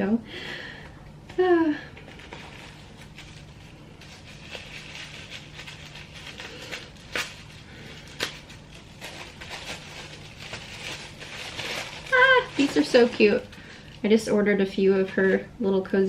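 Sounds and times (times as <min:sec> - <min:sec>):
paper rustling: 0:01.9 - 0:14.0.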